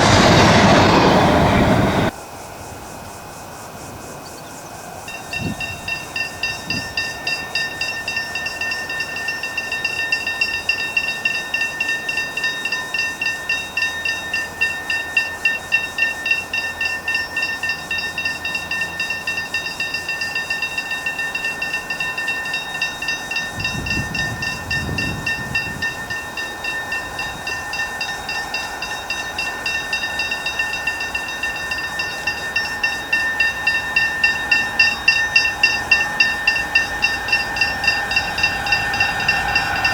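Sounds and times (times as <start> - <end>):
pulsing high-pitched squeal: 0.0 - 2.1, 5.1 - 39.9
freight train wagons rolling: 5.1 - 39.9.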